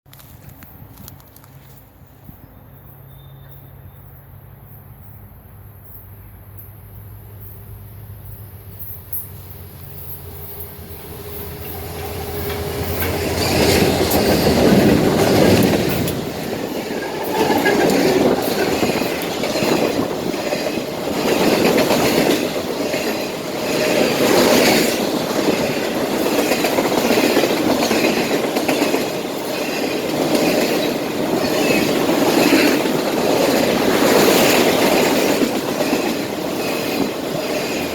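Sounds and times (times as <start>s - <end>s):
diesel locomotive engines droning: 0.2s - 37.9s
train wheels clattering on rail: 8.8s - 37.9s.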